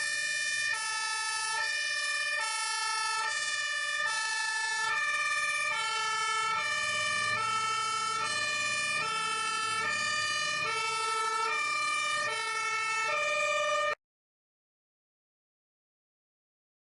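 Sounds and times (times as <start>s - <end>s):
fire truck two-tone siren: 0.0s - 14.0s.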